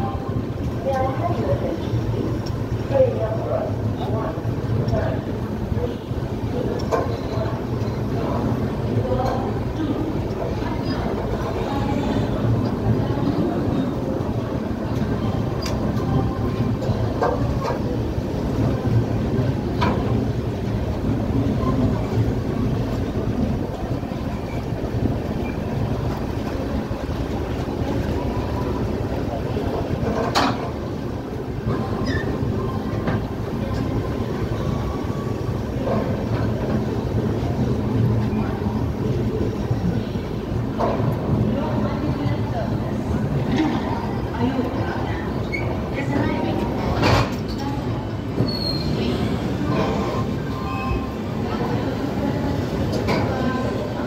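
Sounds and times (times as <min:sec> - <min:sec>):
train wheels rumbling on rail: 0:00.0 - 0:54.0
rail joint clicks: 0:14.2 - 0:34.6.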